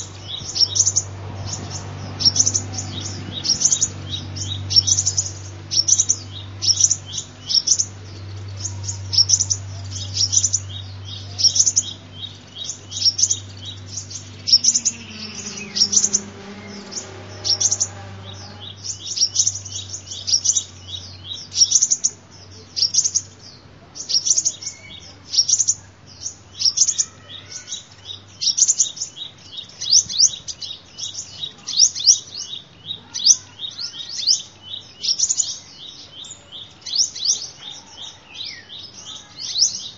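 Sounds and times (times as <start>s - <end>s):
low hum: 0.0s - 21.5s
sunbird high chirps: 0.0s - 39.9s.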